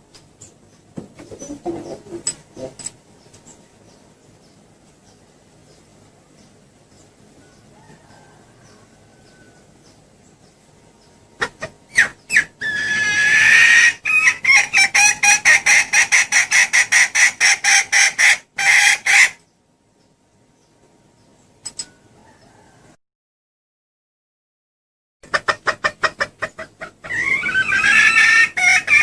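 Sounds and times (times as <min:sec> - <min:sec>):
hen clucking and calling: 0:00.2 - 0:04.4, 0:07.1 - 0:19.5, 0:25.2 - 0:29.0.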